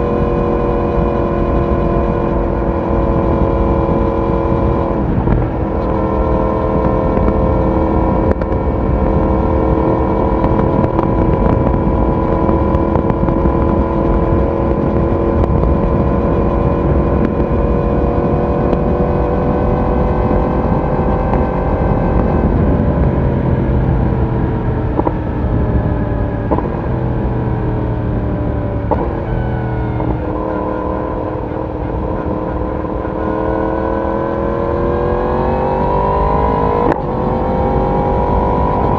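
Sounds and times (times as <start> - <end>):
motorcycle engine: 0.0 - 38.9
road noise: 0.0 - 38.9
wind noise: 0.0 - 38.9.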